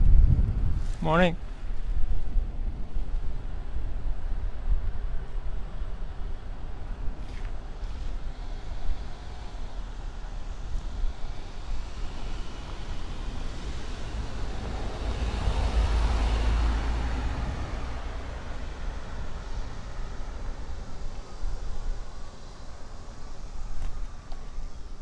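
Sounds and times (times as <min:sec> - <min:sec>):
wind rumble on microphone: 0:00.0 - 0:25.0
vehicle passing: 0:07.4 - 0:25.0.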